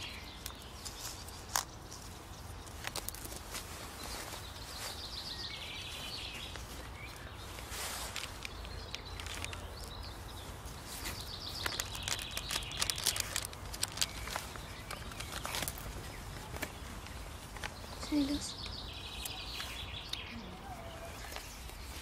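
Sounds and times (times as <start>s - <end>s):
album pages rustling and clicking: 0.0s - 3.7s, 7.5s - 10.0s, 10.8s - 17.9s.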